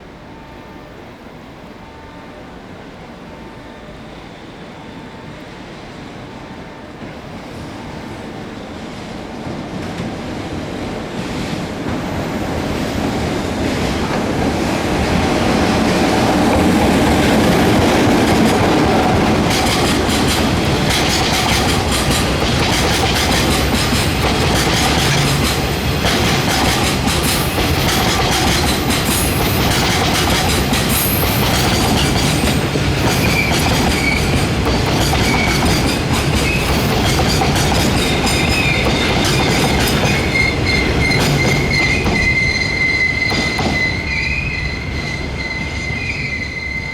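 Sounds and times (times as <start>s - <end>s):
freight train rumble: 0.0s - 46.9s
high squeals: 16.3s - 46.9s
wagon wheels clickety-clack: 17.7s - 43.9s.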